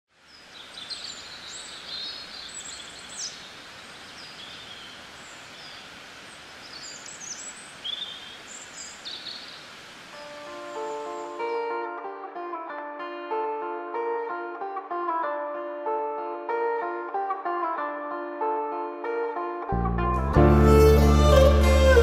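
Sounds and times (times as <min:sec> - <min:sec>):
outdoor hiss: 0:00.1 - 0:11.7
small birds chirping: 0:00.2 - 0:09.8
acoustic guitar music: 0:10.2 - 0:22.0.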